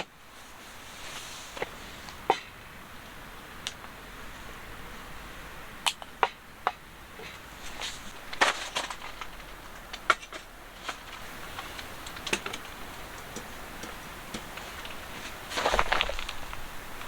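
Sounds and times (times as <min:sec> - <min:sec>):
light clicks and knocks: 0:05.9 - 0:16.6
clattering: 0:07.8 - 0:16.6.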